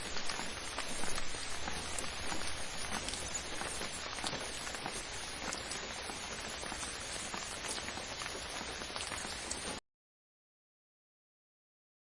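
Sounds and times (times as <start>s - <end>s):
rain falling on a surface: 0.0s - 9.8s.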